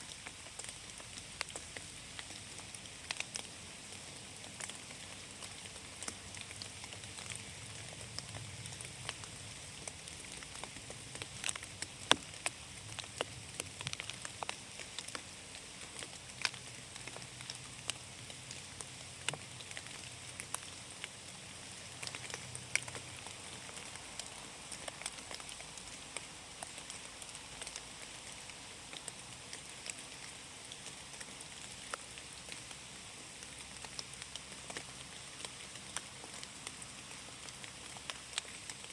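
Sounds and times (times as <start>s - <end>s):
raindrops pattering: 0.0s - 38.9s
steady rainfall hiss: 0.0s - 38.9s.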